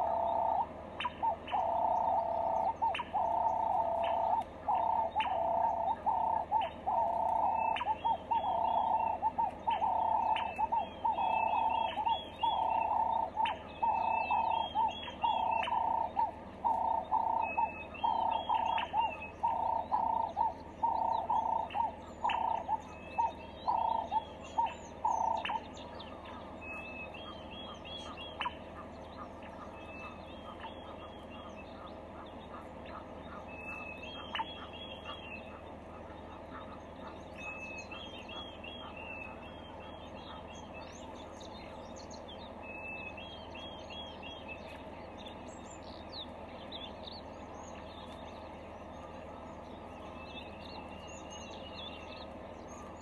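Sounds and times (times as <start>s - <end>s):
high looping bird chirps: 0.0s - 53.0s.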